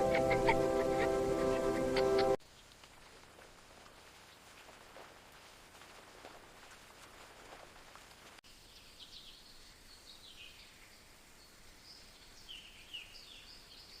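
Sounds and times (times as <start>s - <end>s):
background hiss: 0.0s - 14.0s
faint birds chirping: 8.5s - 14.0s.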